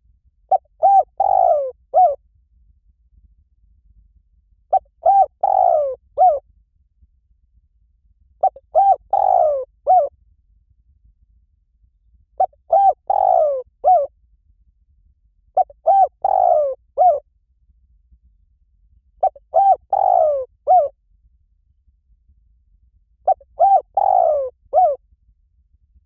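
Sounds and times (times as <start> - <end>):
dove cooing: 0.5 - 2.2, 4.7 - 6.4, 8.4 - 10.1, 12.4 - 14.1, 15.6 - 17.2, 19.2 - 20.9, 23.3 - 25.0.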